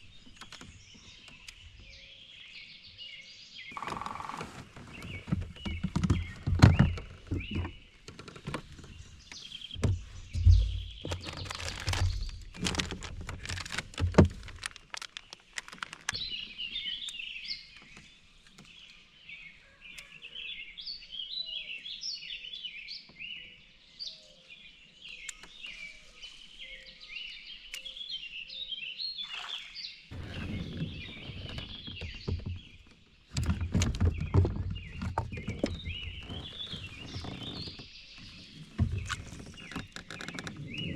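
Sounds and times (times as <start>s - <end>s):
birds chirping and singing: 15.2s - 40.9s.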